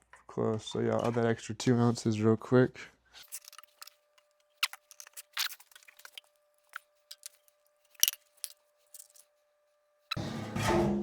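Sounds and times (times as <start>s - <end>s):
oil container clicks and crinkles: 3.2s - 9.2s.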